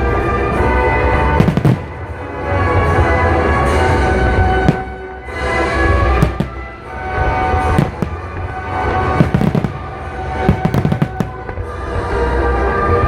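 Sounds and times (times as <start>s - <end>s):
music soundtrack: 0.0s - 13.0s
fireworks crackling: 1.0s - 2.7s, 3.7s - 12.6s
fireworks bursting: 1.1s - 2.8s, 3.7s - 12.4s.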